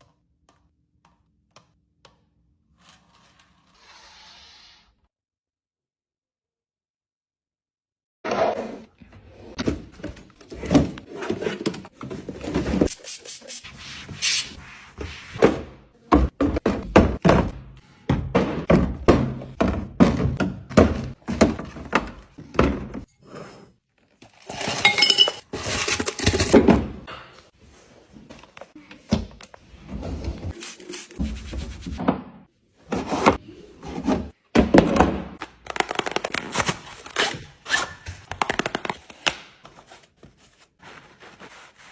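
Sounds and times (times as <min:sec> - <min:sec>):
kitchen items thunking and clinking: 0:15.4 - 0:27.6, 0:31.2 - 0:35.4.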